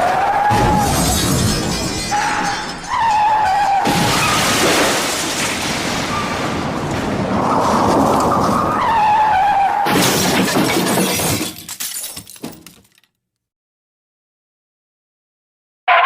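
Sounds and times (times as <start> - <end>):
loud car crash: 0.0 - 11.7
glass breaking: 0.5 - 6.5, 9.9 - 13.1
debris clattering: 0.5 - 8.7, 9.9 - 13.1.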